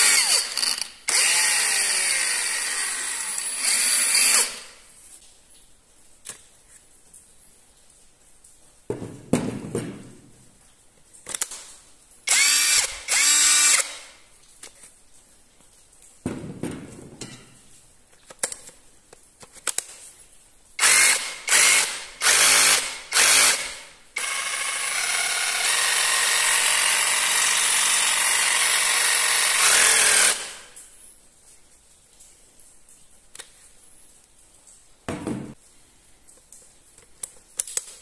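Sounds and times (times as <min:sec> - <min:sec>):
cordless drill running: 0:00.0 - 0:04.7, 0:12.3 - 0:14.1, 0:20.8 - 0:30.7
knock: 0:08.9 - 0:10.2, 0:16.2 - 0:17.4, 0:35.1 - 0:35.6.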